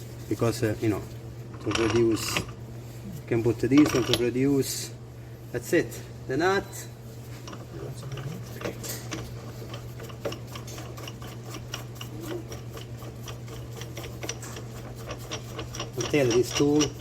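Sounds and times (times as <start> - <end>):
ratchet wrench clicking: 8.6 - 17.0.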